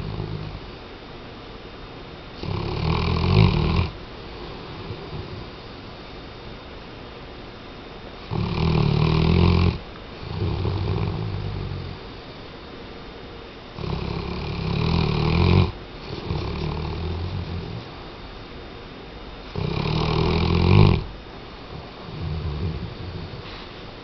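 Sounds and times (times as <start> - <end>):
dog snoring: 0.0 - 0.7, 2.4 - 5.6, 8.2 - 12.1, 13.7 - 18.0, 19.5 - 23.7.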